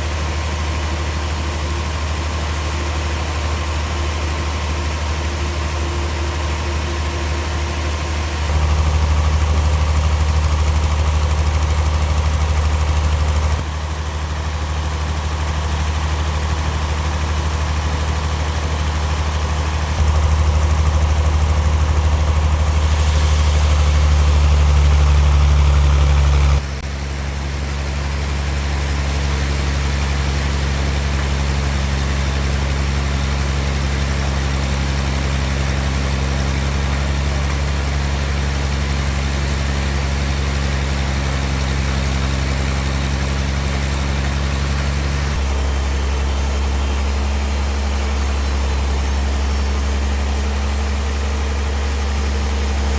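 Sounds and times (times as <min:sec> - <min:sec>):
large engine running: 0:00.0 - 0:52.9.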